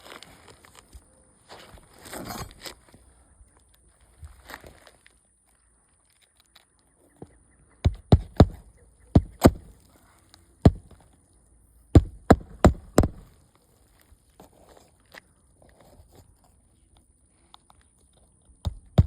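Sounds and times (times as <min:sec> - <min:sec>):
hammer driving nails into shingles: 0:07.8 - 0:09.7, 0:10.7 - 0:11.0, 0:12.0 - 0:13.3, 0:18.6 - 0:19.0.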